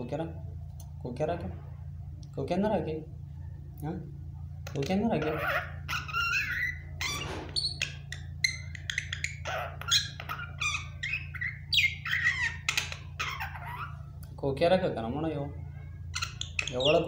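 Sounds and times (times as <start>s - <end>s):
myna bird calling: 4.7s - 14.2s, 15.6s - 17.0s.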